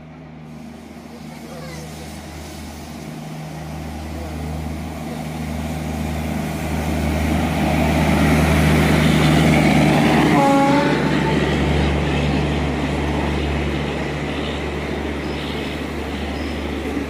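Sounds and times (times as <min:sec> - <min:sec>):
locomotive low hum: 0:00.0 - 0:17.0
train wheels rumbling on rail: 0:00.0 - 0:17.0
train horn: 0:10.2 - 0:11.5.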